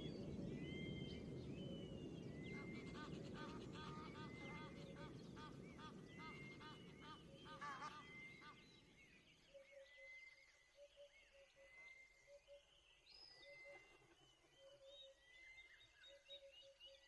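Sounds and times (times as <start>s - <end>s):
bird chirps: 0.0s - 17.0s
bird gobbling calls: 2.5s - 8.6s.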